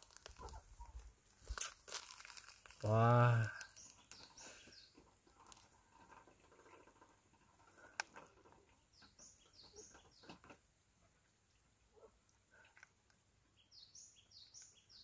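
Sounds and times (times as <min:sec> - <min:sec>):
faint bird chirps: 0:03.1 - 0:05.8, 0:08.7 - 0:10.5, 0:11.1 - 0:15.0.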